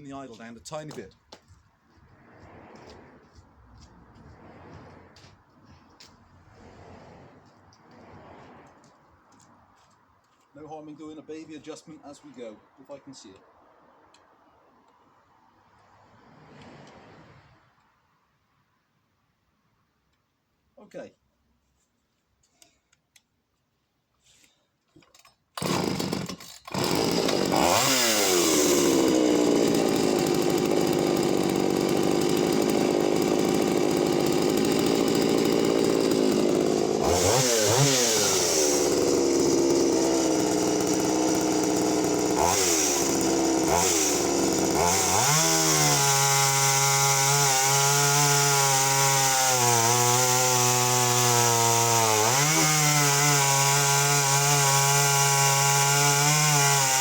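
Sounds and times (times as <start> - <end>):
chainsaw cutting wood: 0.1 - 1.4, 25.5 - 57.0
chainsaw pull start: 24.4 - 57.0
chainsaw running at high revs: 25.6 - 57.0.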